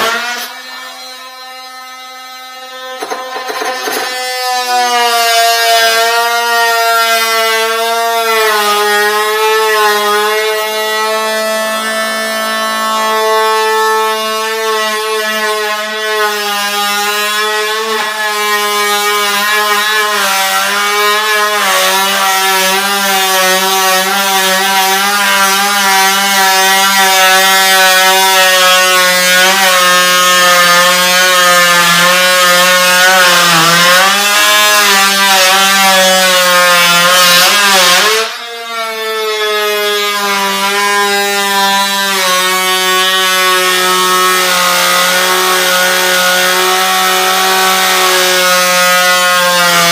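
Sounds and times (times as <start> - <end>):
electric power tool motor running: 0.0 - 5.2.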